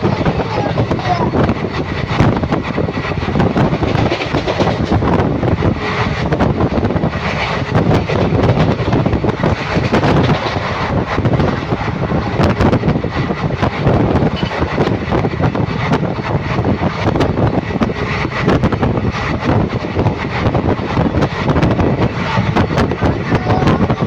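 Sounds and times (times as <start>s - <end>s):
train wheels rumbling on rails: 0.0s - 24.0s
clicks and rattles: 3.4s - 5.1s, 7.2s - 11.8s.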